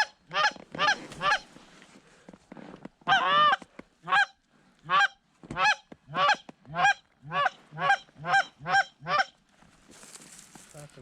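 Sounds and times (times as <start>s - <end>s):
goose call honks: 4.9s - 9.3s.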